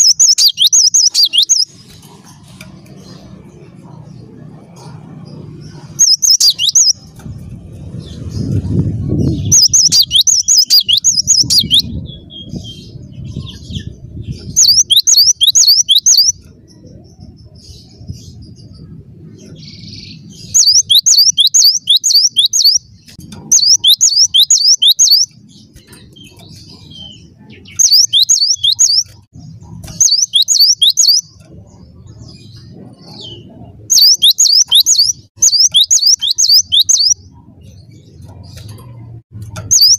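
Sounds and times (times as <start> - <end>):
bird singing whistled notes: 0.0 - 1.7, 6.0 - 7.0, 8.0 - 17.6, 19.6 - 29.2, 29.9 - 31.4, 32.1 - 37.2, 39.6 - 39.9
low rumble: 1.7 - 14.9.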